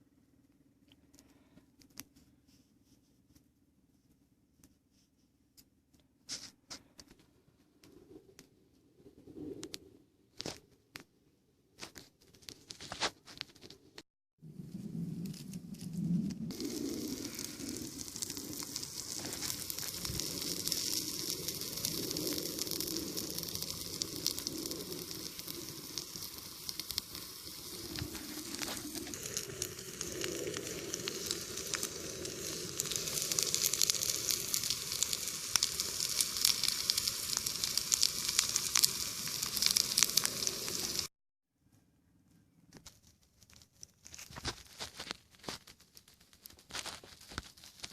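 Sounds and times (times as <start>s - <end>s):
crackles and pops: 0.3s - 2.4s, 5.5s - 41.1s, 42.3s - 47.9s
food sizzling in a pan: 16.5s - 41.1s.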